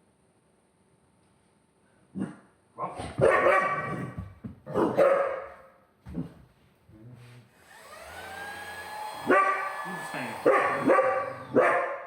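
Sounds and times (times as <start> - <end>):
dog barking: 3.1 - 4.1, 4.7 - 5.7, 9.2 - 9.7, 10.4 - 12.0
vacuum cleaner motor running: 7.6 - 11.6.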